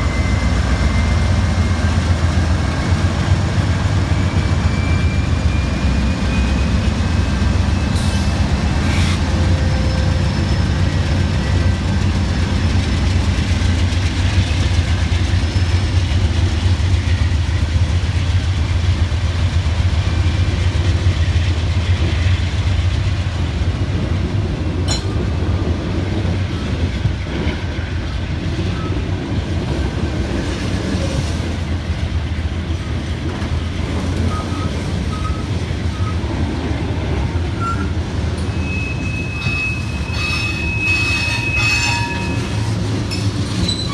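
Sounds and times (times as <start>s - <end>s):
train wheels rumbling on rail: 0.0s - 43.9s
faint wheel squeals: 38.5s - 43.9s.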